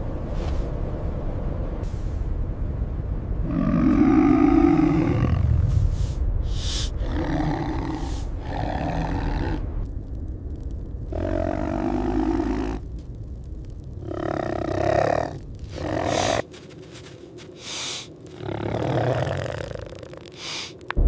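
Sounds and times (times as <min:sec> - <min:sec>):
tiger cub growling and roaring: 0:03.4 - 0:05.6, 0:06.6 - 0:09.7, 0:11.1 - 0:12.8, 0:14.0 - 0:16.4, 0:18.3 - 0:20.4.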